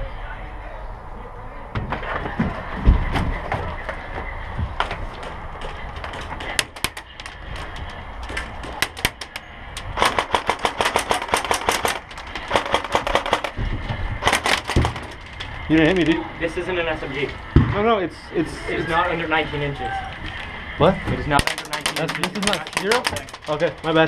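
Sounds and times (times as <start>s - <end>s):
airsoft guns firing: 10.0s - 13.6s, 14.2s - 15.2s.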